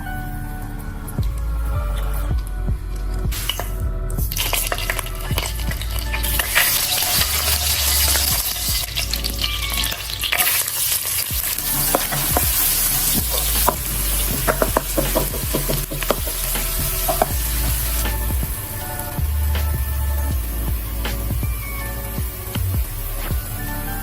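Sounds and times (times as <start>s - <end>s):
food sizzling in a hot pan: 6.1s - 19.2s.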